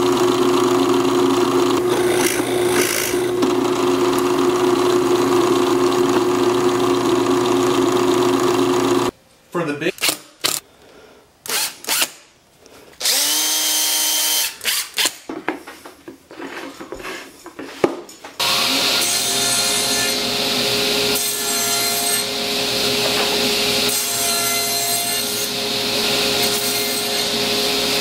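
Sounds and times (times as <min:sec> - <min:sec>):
power tool cutting wood: 0:00.0 - 0:09.1, 0:13.0 - 0:15.2, 0:18.4 - 0:28.0.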